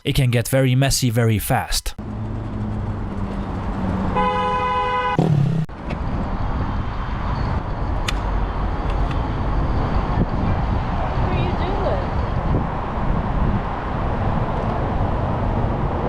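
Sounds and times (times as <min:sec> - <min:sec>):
road and engine rumble: 0:00.0 - 0:16.0
vehicle horn: 0:04.0 - 0:05.4.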